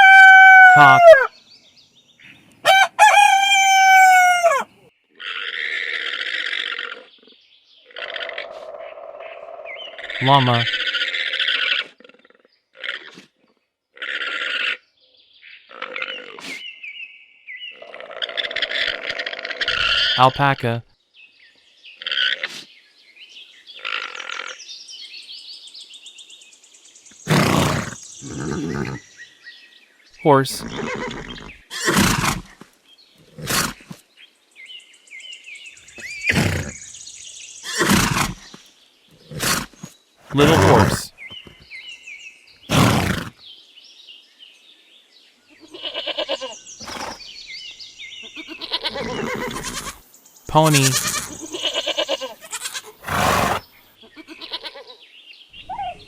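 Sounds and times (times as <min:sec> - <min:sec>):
alpaca grunting calls: 0:00.0 - 0:01.3, 0:10.0 - 0:13.2, 0:17.8 - 0:20.7, 0:27.3 - 0:29.0, 0:35.9 - 0:36.9, 0:39.2 - 0:41.6, 0:42.7 - 0:43.3, 0:48.2 - 0:55.0
hoarse rasping call: 0:00.0 - 0:01.3, 0:39.2 - 0:41.2, 0:48.6 - 0:53.7
rooster crowing: 0:00.0 - 0:01.3, 0:02.6 - 0:04.7
small birds chirping: 0:19.6 - 0:56.0.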